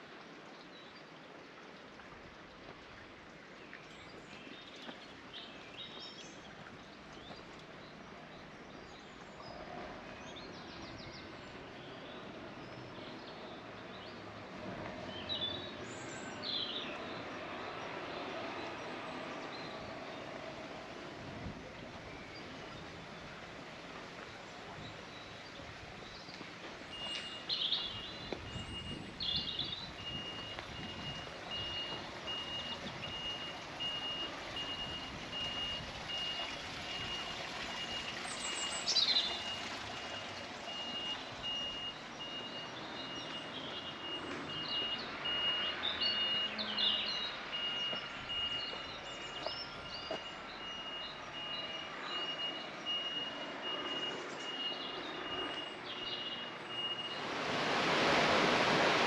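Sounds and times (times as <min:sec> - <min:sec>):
outdoor street noise: 0:02.1 - 0:59.0
birds chirping: 0:24.2 - 0:37.2, 0:37.8 - 0:57.3
reversing alarm beeping: 0:26.9 - 0:49.0, 0:49.7 - 0:57.3.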